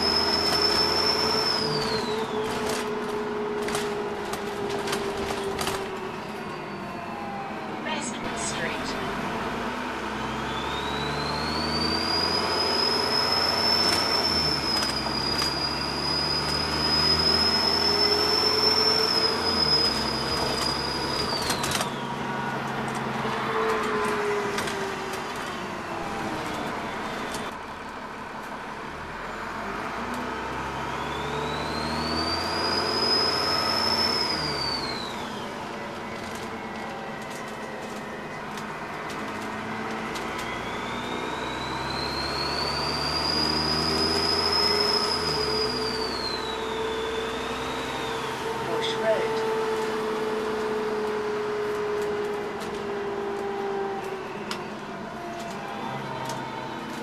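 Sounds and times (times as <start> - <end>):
turbocharger whistle: 0.0 - 2.9, 10.2 - 22.5, 30.4 - 36.7, 40.3 - 51.0
bus engine: 0.0 - 57.0.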